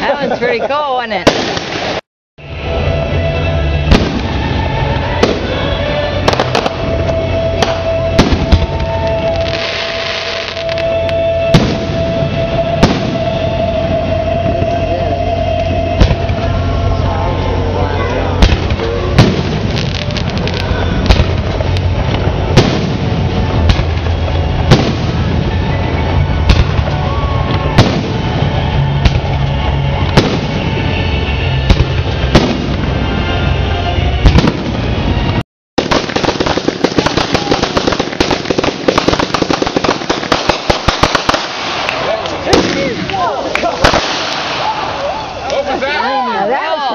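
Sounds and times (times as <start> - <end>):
continuous rumble: 0.0 - 35.4
fireworks crackling: 0.0 - 46.9
fireworks bangs: 1.1 - 2.0, 2.6 - 45.8.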